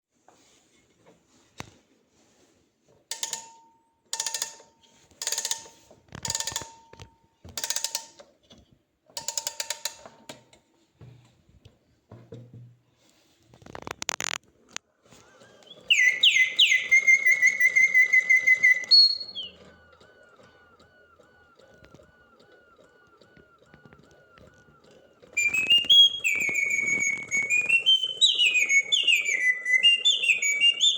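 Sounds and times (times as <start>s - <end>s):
mechanical bird whistling birdsong: 15.6s - 20.0s, 25.4s - 30.9s.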